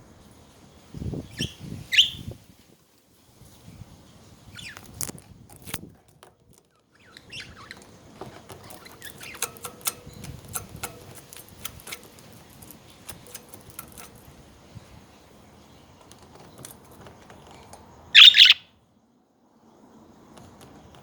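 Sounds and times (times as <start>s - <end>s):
budgerigars chirping: 1.4s - 2.2s, 7.0s - 7.8s, 18.1s - 18.6s
sharp clicks and taps: 8.8s - 14.3s.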